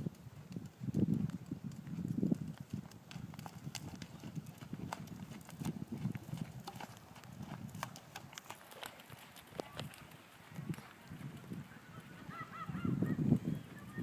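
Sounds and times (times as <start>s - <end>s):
horse hooves clip-clopping: 0.0s - 11.9s.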